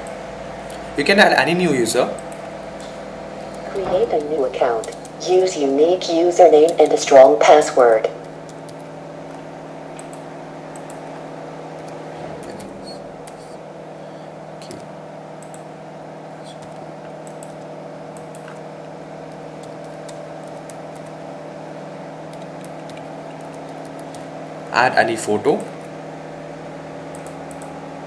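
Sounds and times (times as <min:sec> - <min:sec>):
electrical hum: 0:00.0 - 0:28.0
keyboard and mouse clicks: 0:03.5 - 0:05.5, 0:06.6 - 0:07.0, 0:08.2 - 0:11.1, 0:11.8 - 0:13.5, 0:14.6 - 0:15.6, 0:16.5 - 0:18.6, 0:19.3 - 0:21.2, 0:22.3 - 0:24.3, 0:27.1 - 0:27.7.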